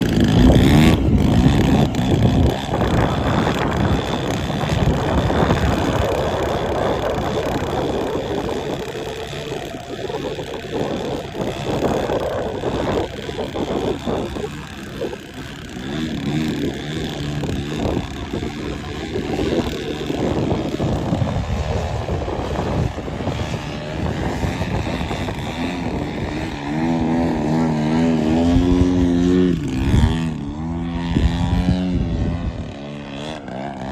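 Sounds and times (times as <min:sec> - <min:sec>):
model plane engine and propeller: 0:00.0 - 0:33.9.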